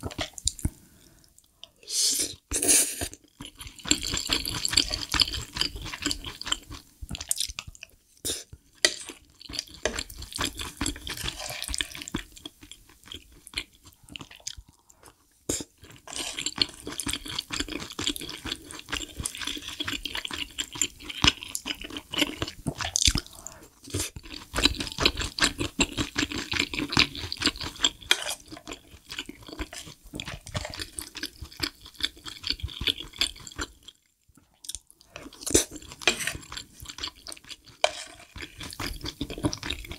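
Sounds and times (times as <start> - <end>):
chewing food: 0.0 - 1.8, 3.1 - 39.9
spoon scraping and tapping plate: 36.0 - 36.5, 37.8 - 38.4.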